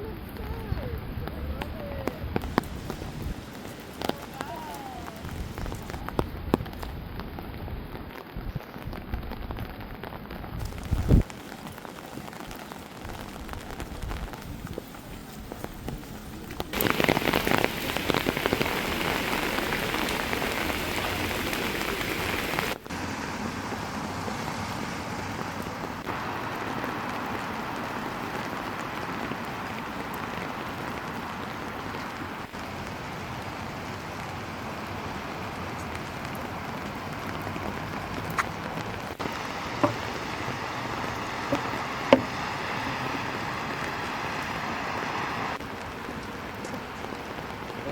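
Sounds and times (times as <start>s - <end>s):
steady rain falling: 0.0s - 47.9s
sharp taps: 39.8s - 40.1s, 41.5s - 42.4s.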